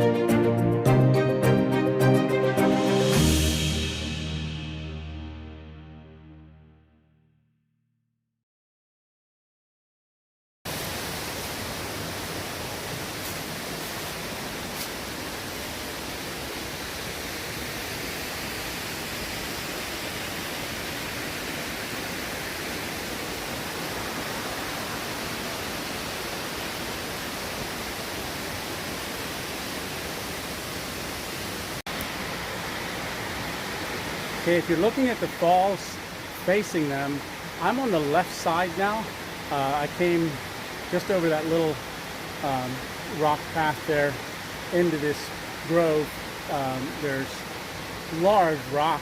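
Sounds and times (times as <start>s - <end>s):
waterfall rushing: 10.7s - 49.0s.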